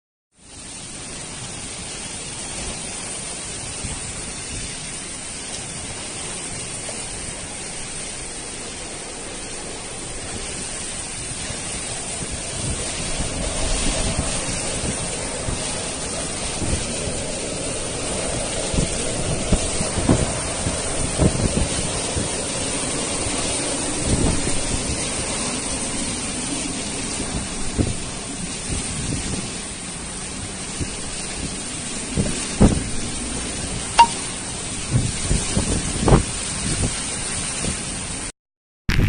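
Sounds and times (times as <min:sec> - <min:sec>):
roar of rushing water: 0:00.3 - 0:38.3
wind thumps on microphone: 0:10.2 - 0:22.8, 0:23.4 - 0:25.4, 0:27.2 - 0:29.6, 0:30.4 - 0:33.2, 0:34.0 - 0:38.1.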